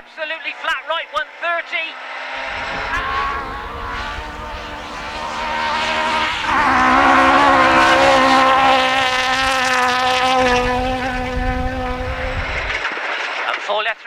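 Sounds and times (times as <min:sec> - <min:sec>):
rally car engine at full throttle: 0:02.4 - 0:12.8.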